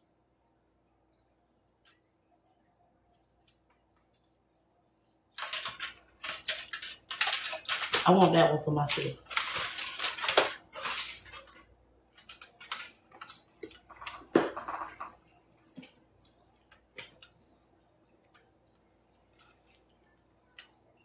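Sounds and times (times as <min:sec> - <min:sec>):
cornstarch chunks breaking: 0:05.4 - 0:11.6.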